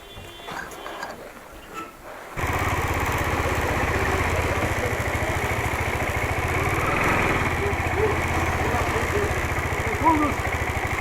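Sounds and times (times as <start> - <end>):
vehicle engine starting and idling: 2.4 - 11.0.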